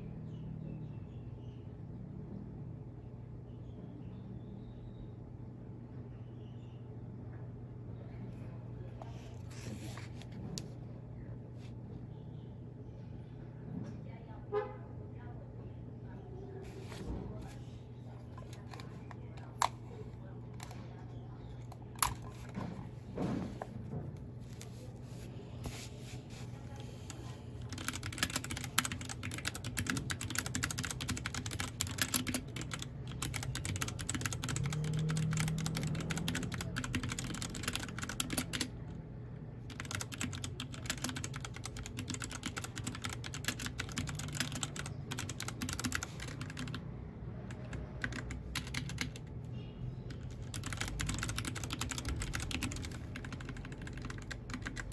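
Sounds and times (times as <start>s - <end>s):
steady low hum: 0.0s - 54.9s
mechanical keyboard typing: 22.0s - 22.6s, 27.1s - 38.8s, 39.7s - 46.8s, 47.5s - 49.3s, 50.1s - 54.9s.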